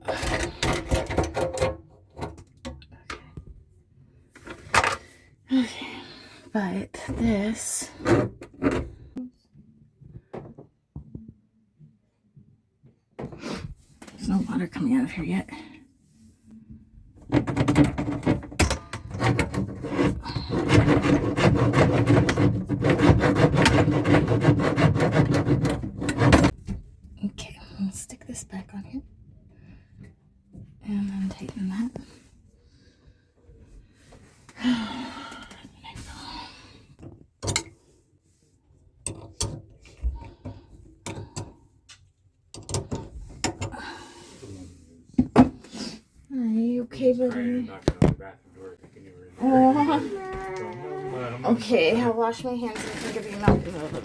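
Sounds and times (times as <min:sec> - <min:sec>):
drain snake scraping in pipe: 0:51.6 - 0:54.0.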